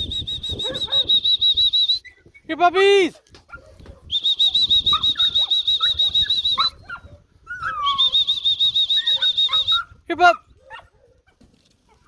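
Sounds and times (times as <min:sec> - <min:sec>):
pea whistle trilling blasts: 0:00.0 - 0:02.2, 0:04.1 - 0:06.7, 0:07.9 - 0:09.8.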